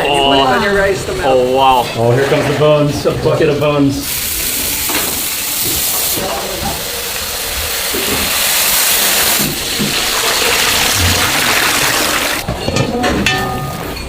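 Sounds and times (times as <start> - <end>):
steam hissing from cooking pots: 2.9 - 12.4.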